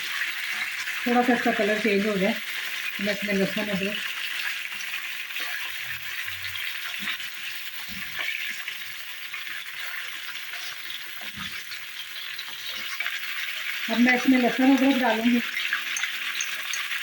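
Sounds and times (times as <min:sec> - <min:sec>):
meat sizzling in hot fat: 0:00.0 - 0:17.0.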